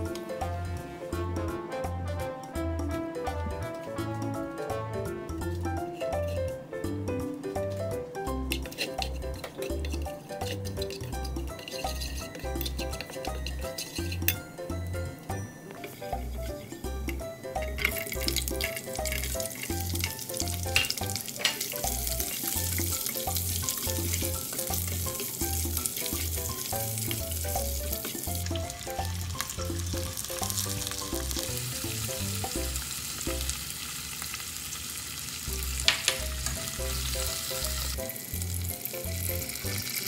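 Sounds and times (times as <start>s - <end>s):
vegetables sizzling in oil: 8.3s - 40.0s.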